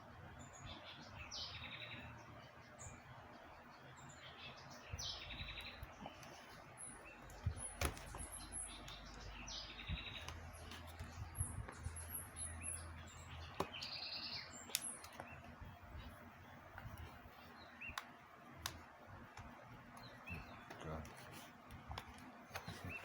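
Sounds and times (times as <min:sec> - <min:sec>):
birds chirping: 0:00.0 - 0:23.0
sharp clicks: 0:14.6 - 0:15.3.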